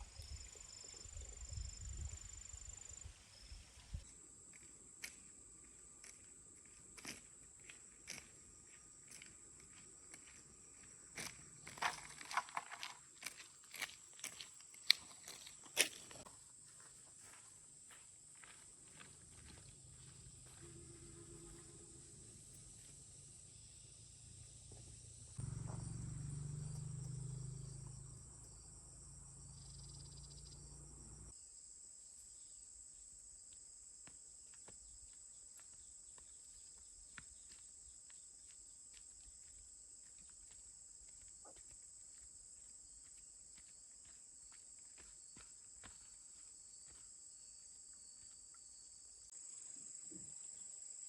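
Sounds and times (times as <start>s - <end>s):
insects chirring: 0.0s - 31.4s.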